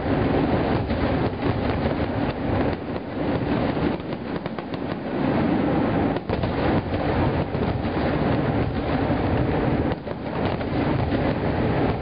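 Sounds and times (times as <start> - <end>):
fireworks bursting: 0.0 - 12.0
sharp crackles of fireworks: 0.0 - 12.0.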